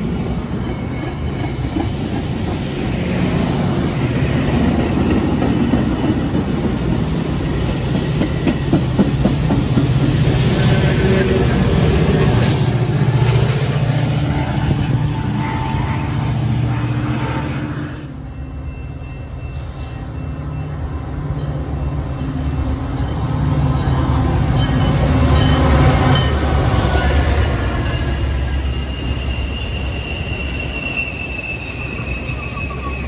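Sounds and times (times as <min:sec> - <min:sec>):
train coaches rolling by: 0:00.0 - 0:33.0
high wheel squeal: 0:00.3 - 0:02.0, 0:10.5 - 0:33.0.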